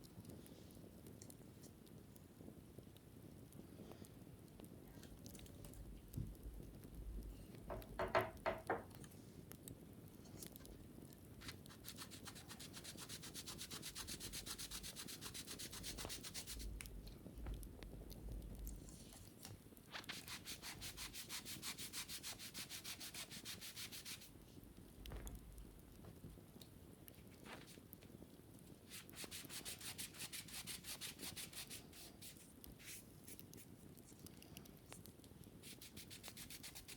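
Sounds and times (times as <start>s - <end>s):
wicker basket being scrubbed: 11.4s - 16.7s, 20.0s - 24.3s, 28.9s - 33.7s, 35.6s - 36.9s.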